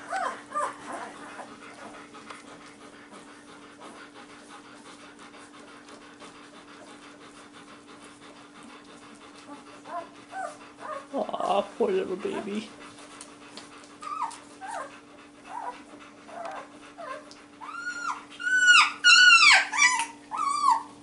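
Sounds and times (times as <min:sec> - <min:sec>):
dog panting rapidly: 0:00.0 - 0:20.8
high puppy squeaks: 0:09.5 - 0:11.1, 0:14.0 - 0:14.9, 0:15.5 - 0:21.0.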